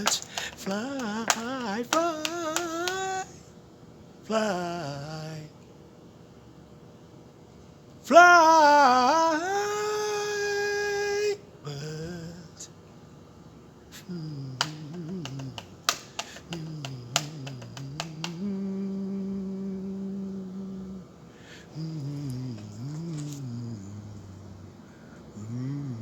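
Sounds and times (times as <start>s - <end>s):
sharp clicks: 0.0s - 3.2s, 14.6s - 18.5s
man humming: 0.0s - 3.3s, 14.0s - 21.1s, 21.7s - 24.6s, 25.4s - 26.0s.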